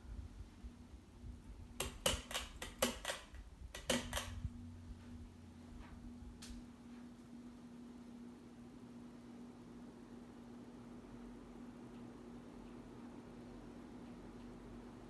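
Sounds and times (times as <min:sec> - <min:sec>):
fan motor hum: 0:00.0 - 0:15.0
pull-chain clicks and rattle: 0:01.8 - 0:04.4.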